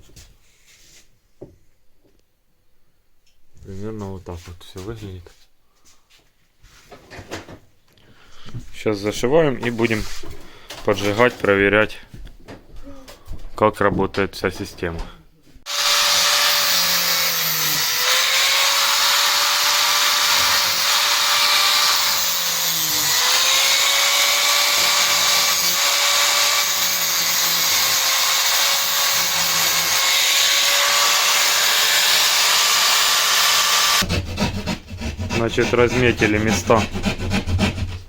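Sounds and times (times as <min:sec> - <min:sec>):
power tool motor running: 0:15.7 - 0:34.0.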